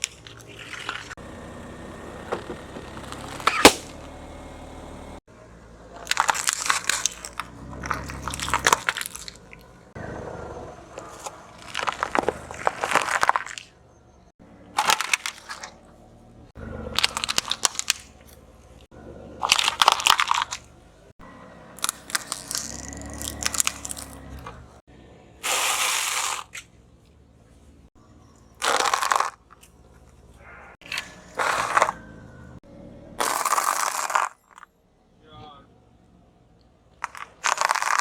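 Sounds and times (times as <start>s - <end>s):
objects crushed under car tyre: 2.3s - 4.2s, 6.0s - 9.7s, 10.9s - 13.8s, 14.7s - 15.9s, 16.5s - 20.8s, 21.8s - 24.8s, 28.4s - 29.8s, 30.8s - 32.0s, 33.2s - 34.7s, 37.0s - 38.0s.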